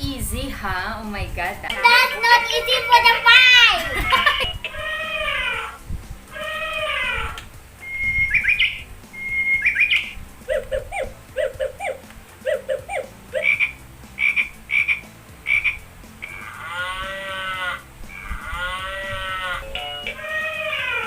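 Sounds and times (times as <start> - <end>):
animal call: 4.0 - 21.0
frog croaking: 4.3 - 21.0.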